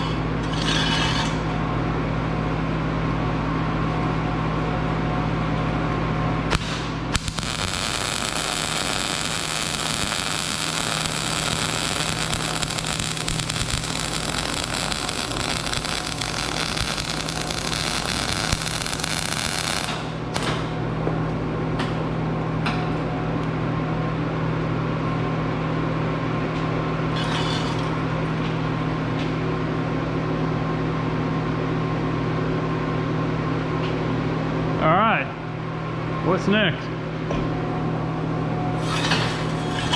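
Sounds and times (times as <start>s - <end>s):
steady low hum: 0.0s - 39.9s
welding arc hissing: 6.5s - 20.7s, 38.8s - 39.9s.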